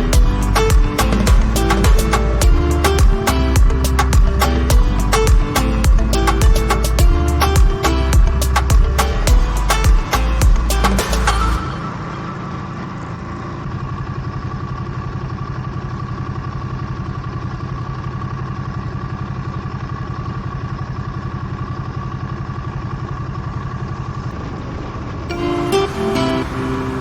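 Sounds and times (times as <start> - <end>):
motorcycle engine idling: 0.0 - 11.5, 12.2 - 24.3
background music: 0.0 - 12.2, 25.3 - 27.0.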